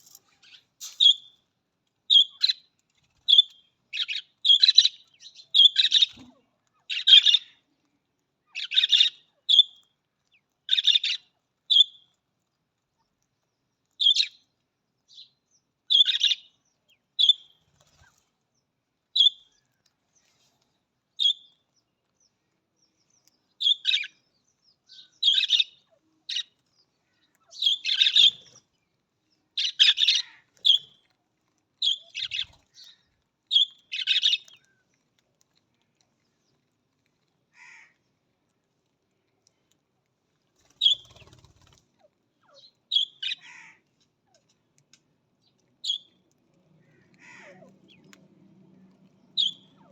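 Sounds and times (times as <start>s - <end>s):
budgerigars chirping: 4.0s - 6.1s, 8.6s - 9.1s, 15.9s - 16.4s, 25.2s - 26.4s, 27.5s - 28.5s, 29.6s - 30.9s, 31.8s - 32.9s, 33.6s - 34.5s, 42.4s - 43.6s, 49.3s - 49.9s.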